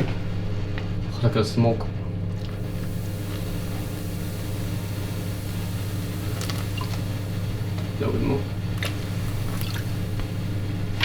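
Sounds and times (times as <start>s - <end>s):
steady low hum: 0.0s - 11.0s
fizzy drink fizzing in powder: 2.3s - 11.0s.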